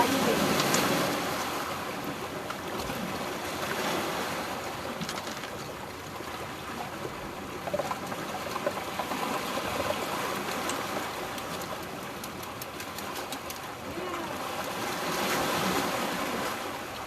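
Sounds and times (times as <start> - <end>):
seawater washing on shore: 0.0 - 17.0.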